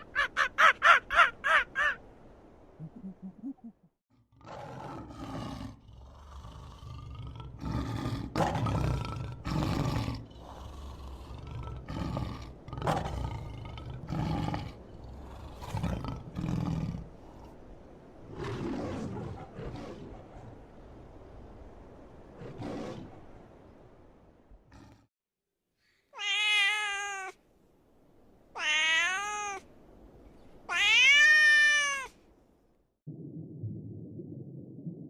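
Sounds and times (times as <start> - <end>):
big cat roaring and grunting: 4.4 - 17.1.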